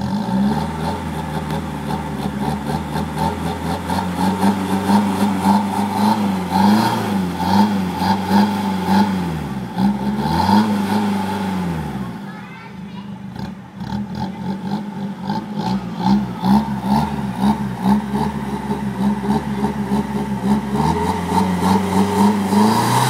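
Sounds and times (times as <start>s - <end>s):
diesel engine revving: 0.0s - 12.3s, 13.2s - 23.0s.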